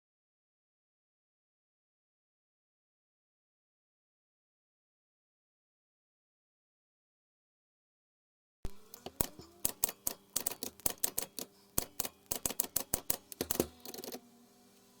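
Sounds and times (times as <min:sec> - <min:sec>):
sharp rapid clicks: 0:08.9 - 0:14.2.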